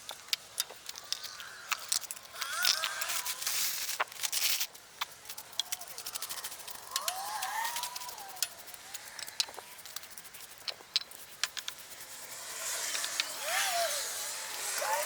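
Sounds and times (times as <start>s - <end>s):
dry plants clicking and crackling: 0.0s - 15.0s
car passing by: 12.1s - 15.0s.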